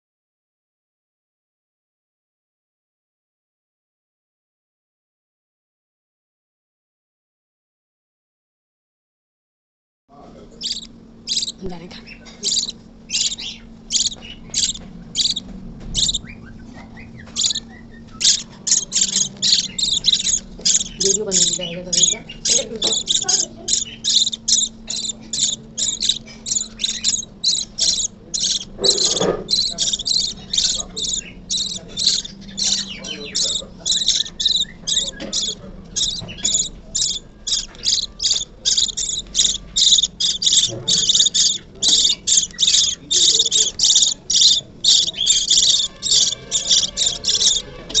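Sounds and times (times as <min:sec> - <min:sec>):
chicks begging cheeps: 0:10.6 - 0:15.4, 0:16.0 - 0:48.0.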